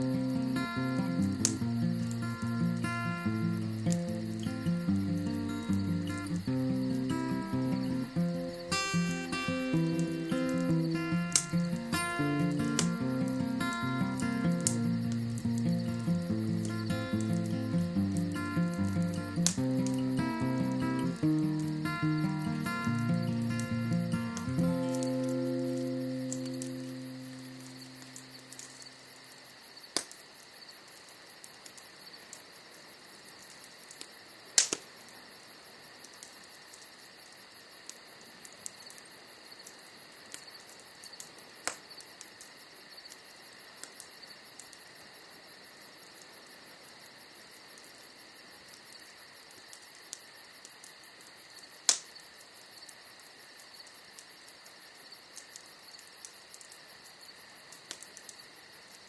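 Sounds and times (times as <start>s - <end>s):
bonfire crackling: 0.0s - 30.2s
insect chirring: 0.0s - 59.0s
fire popping: 0.1s - 29.0s.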